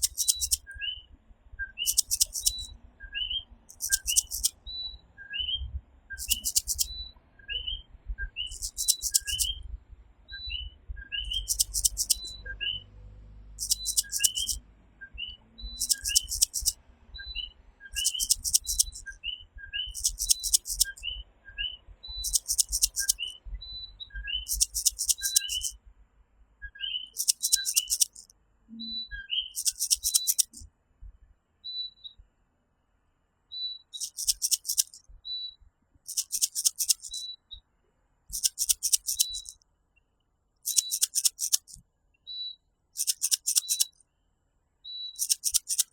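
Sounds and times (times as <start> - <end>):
tree frogs calling: 0.0 - 0.6, 1.8 - 2.8, 3.6 - 4.6, 6.2 - 7.0, 8.5 - 9.6, 11.2 - 12.5, 13.6 - 14.6, 15.7 - 16.8, 17.9 - 19.1, 19.9 - 21.0, 22.2 - 23.4, 24.4 - 25.7, 27.0 - 28.3, 29.4 - 30.6, 34.0 - 35.1, 36.1 - 37.2.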